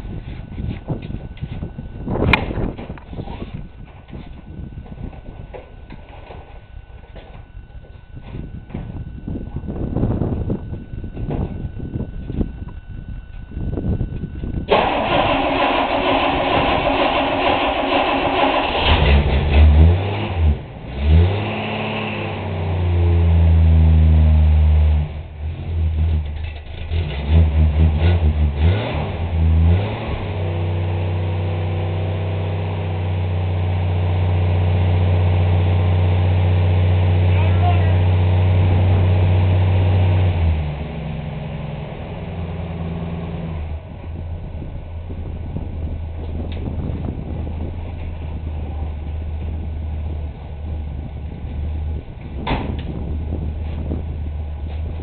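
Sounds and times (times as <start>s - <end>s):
car engine idling unevenly: 30.7s - 55.0s
sharp clunk: 52.4s - 52.9s.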